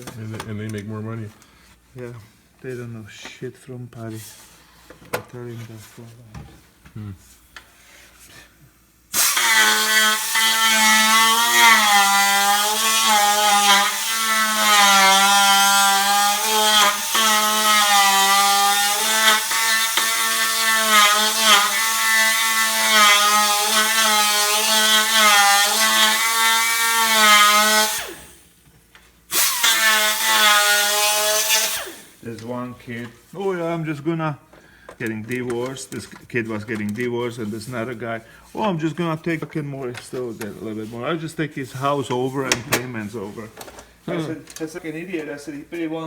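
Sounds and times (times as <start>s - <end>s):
power tool whining on metal: 9.1s - 28.5s, 29.3s - 32.2s.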